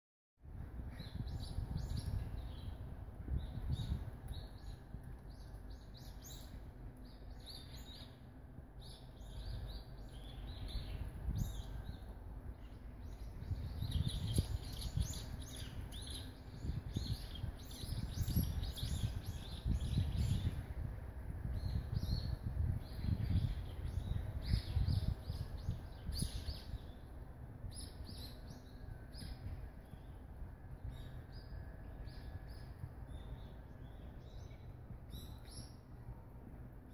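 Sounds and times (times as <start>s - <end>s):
small birds chirping: 0.9s - 20.8s, 21.5s - 36.0s.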